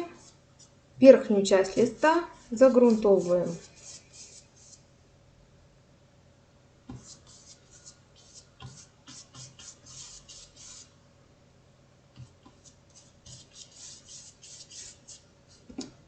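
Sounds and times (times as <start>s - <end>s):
paintbrush scratching on paper: 0.0s - 0.8s, 1.6s - 4.9s, 6.9s - 10.9s, 12.5s - 15.7s.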